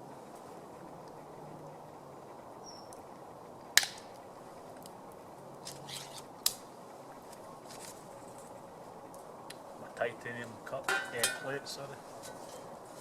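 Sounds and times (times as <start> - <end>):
steady low hiss: 0.0 - 13.0
metal cookware clicking and knocking: 10.9 - 11.6.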